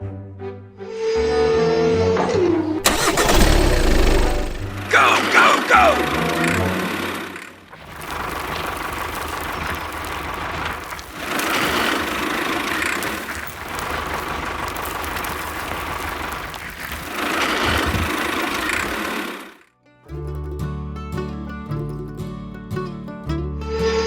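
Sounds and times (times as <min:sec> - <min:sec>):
small motor rattling: 0:02.8 - 0:19.7.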